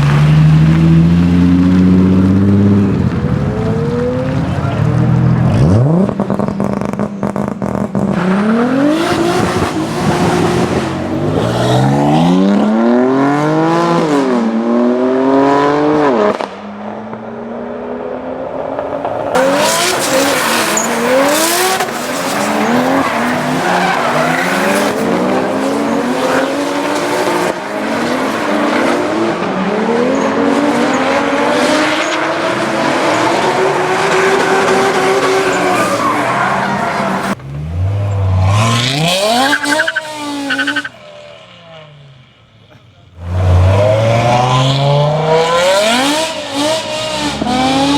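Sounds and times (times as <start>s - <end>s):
car engine revving: 0.0s - 47.9s
tyres squealing: 19.4s - 26.5s, 34.2s - 41.0s.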